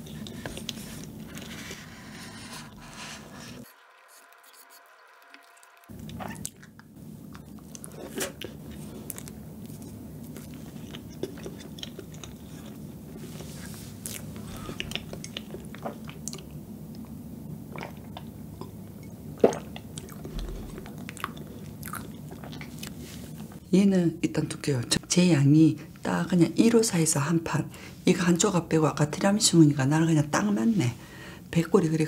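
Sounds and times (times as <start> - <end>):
chewing with wet mouth smacks: 5.9 - 13.0, 14.0 - 23.0.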